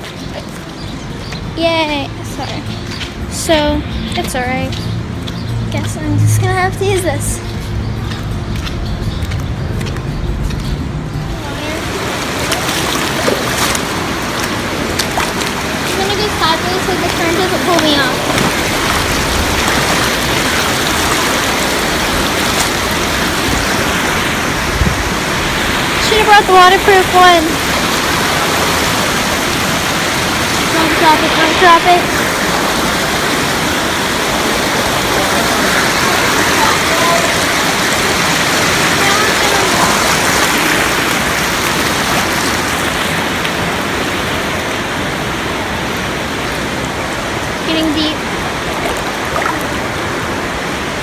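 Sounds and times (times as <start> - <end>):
river current rushing: 11.2 - 51.0.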